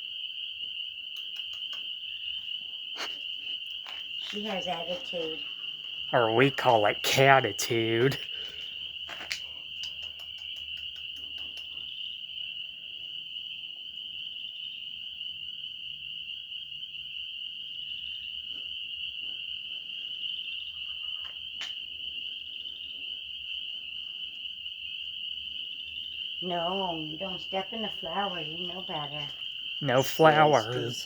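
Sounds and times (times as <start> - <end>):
night creatures trilling: 2.9 - 11.7, 26.4 - 31.0.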